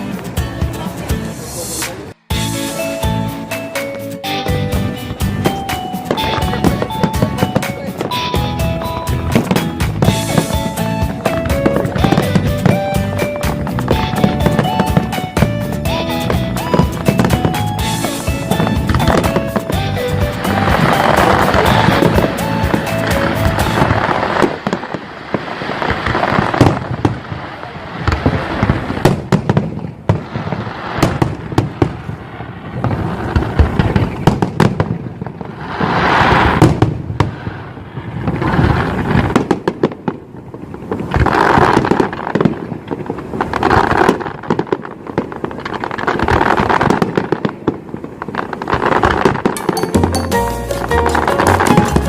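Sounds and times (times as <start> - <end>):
rapid crackling and popping: 6.2 - 31.8, 38.1 - 49.9, 50.7 - 52.0.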